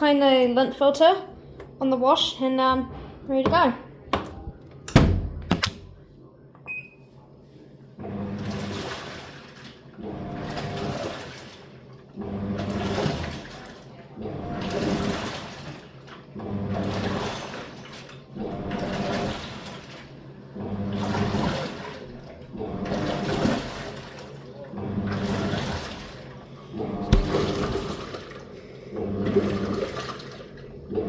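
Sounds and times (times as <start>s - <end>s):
washing machine motor humming: 8.0s - 31.0s
water sloshing: 25.1s - 31.0s.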